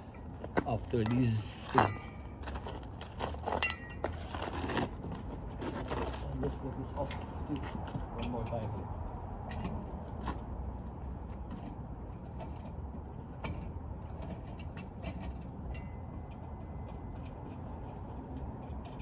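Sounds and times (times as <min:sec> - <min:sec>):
thin metallic ring: 0:01.0 - 0:04.4, 0:15.2 - 0:16.9.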